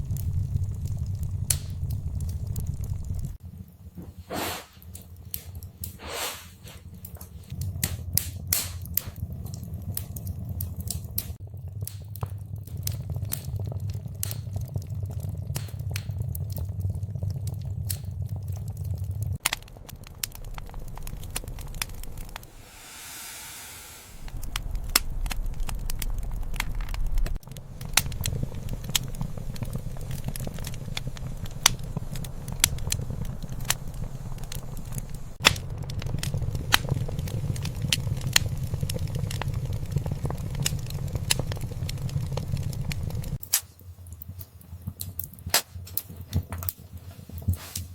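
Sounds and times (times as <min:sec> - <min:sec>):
wood fire crackling and popping: 0:00.0 - 0:23.1, 0:24.2 - 0:47.9
low rumble of flames: 0:00.0 - 0:47.9
soft hiss: 0:22.4 - 0:24.4.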